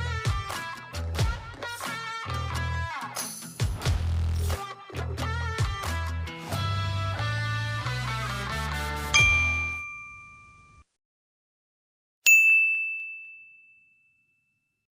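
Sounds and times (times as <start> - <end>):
background music: 0.0 - 9.8
bright chime ringing: 9.2 - 10.8.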